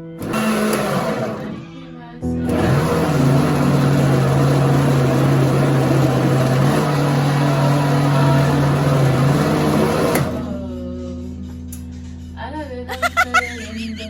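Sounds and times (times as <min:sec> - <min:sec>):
appliance motor whirring: 0:00.0 - 0:01.7, 0:02.4 - 0:10.6.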